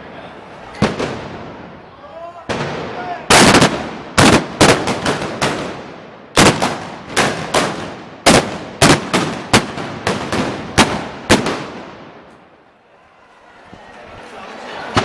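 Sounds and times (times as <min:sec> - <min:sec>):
loud gunshots with echo: 0:00.8 - 0:01.8, 0:02.5 - 0:12.3.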